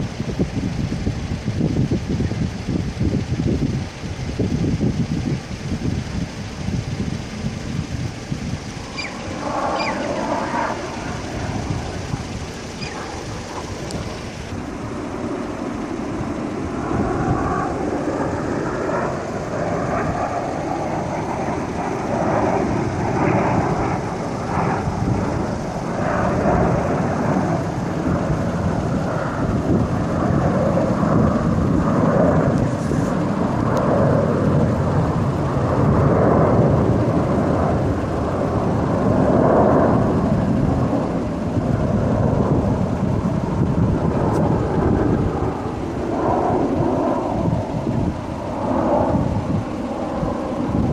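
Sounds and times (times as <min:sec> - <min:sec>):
aircraft engine rumble: 0:00.0 - 0:50.9.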